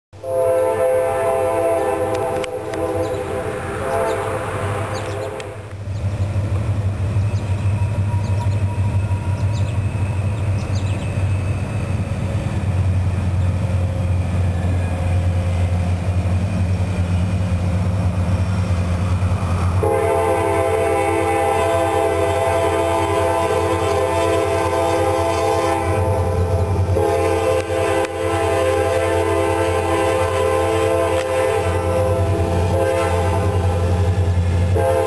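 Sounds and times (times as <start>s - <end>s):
locomotive air horn: 0.2s - 5.8s, 19.8s - 35.0s
diesel locomotive engines rumbling: 0.2s - 35.0s.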